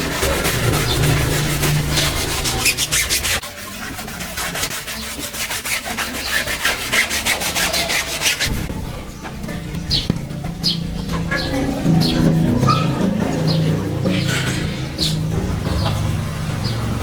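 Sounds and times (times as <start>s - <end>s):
brush scrubbing a surface: 0.0s - 8.7s.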